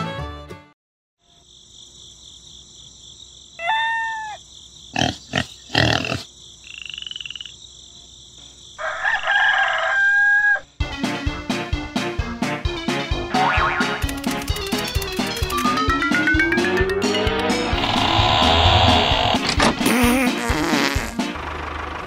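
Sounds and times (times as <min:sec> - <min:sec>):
high chirring insects: 0:01.2 - 0:10.2
frog croaks: 0:03.6 - 0:07.6, 0:17.8 - 0:19.5
rooster crowing: 0:08.8 - 0:10.7.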